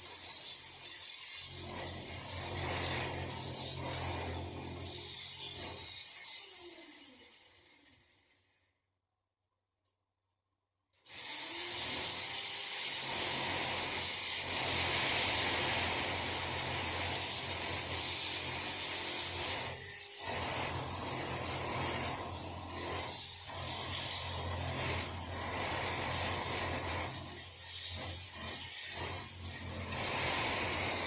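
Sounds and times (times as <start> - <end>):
small electric motor running: 0.0 - 8.5, 11.0 - 31.0.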